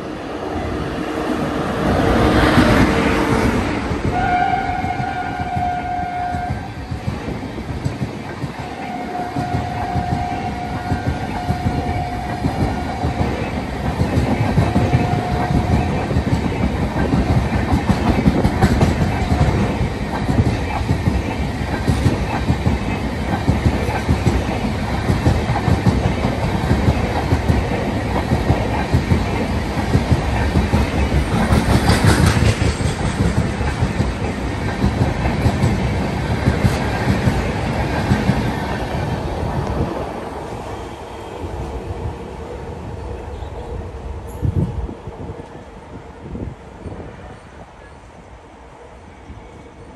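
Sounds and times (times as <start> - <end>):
train wheels clattering over rails: 1.8 - 40.1
train horn blasts: 4.1 - 6.8, 8.6 - 13.2, 14.7 - 16.0, 40.7 - 45.0.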